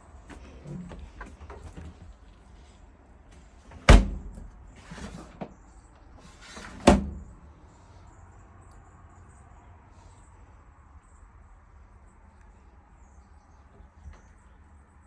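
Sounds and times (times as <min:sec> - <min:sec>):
door slamming: 0:00.3 - 0:02.2, 0:03.7 - 0:05.5, 0:06.2 - 0:07.4.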